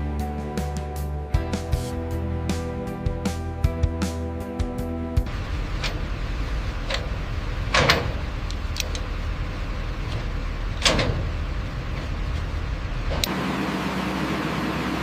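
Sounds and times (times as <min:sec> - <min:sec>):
short hissing: 0:01.6 - 0:02.1
heavy machinery rumbling: 0:05.2 - 0:15.0
running machine hum: 0:05.2 - 0:15.0.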